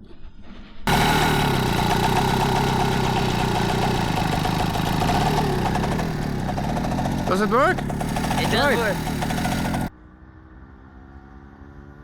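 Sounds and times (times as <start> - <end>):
moped engine running: 0.9 - 9.9.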